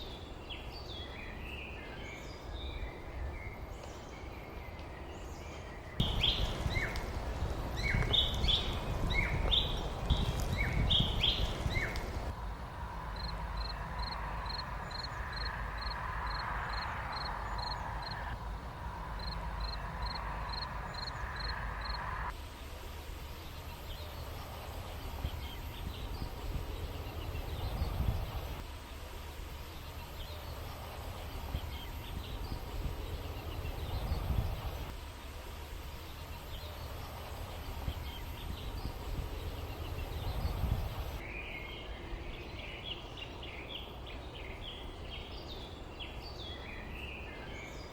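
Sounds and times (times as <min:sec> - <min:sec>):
small birds chirping: 0:00.0 - 0:12.4, 0:19.2 - 0:22.2, 0:23.2 - 0:47.9
steady low rumble: 0:06.0 - 0:41.2.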